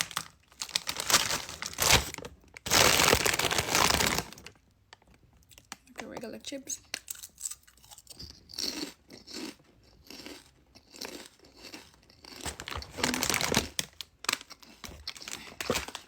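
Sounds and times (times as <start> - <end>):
chewing crisp chips: 6.8 - 16.0.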